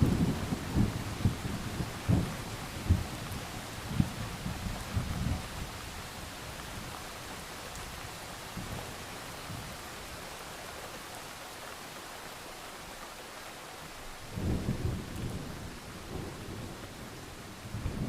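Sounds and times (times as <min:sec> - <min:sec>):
low rumble of thunder: 0:00.0 - 0:07.0, 0:14.3 - 0:18.0
steady rain hiss: 0:00.0 - 0:18.0.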